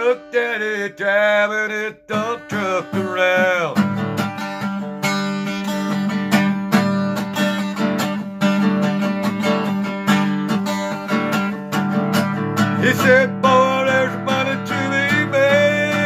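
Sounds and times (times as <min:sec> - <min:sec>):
person singing: 0:00.0 - 0:03.9, 0:12.8 - 0:16.0
acoustic guitar strumming: 0:00.0 - 0:16.0.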